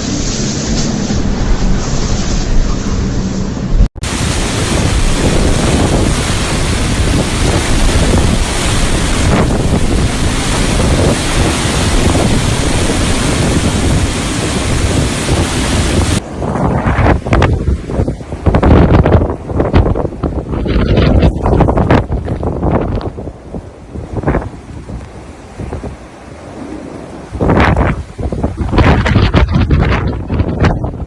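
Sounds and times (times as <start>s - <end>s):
blizzard wind buffeting microphone: 0.0s - 31.0s.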